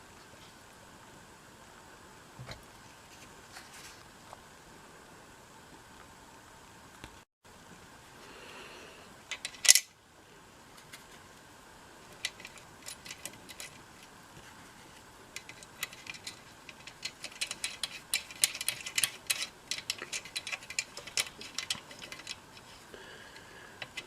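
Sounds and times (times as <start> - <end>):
small metal parts clicking: 9.3 - 9.9, 12.1 - 14.1, 15.4 - 22.8, 23.8 - 24.0.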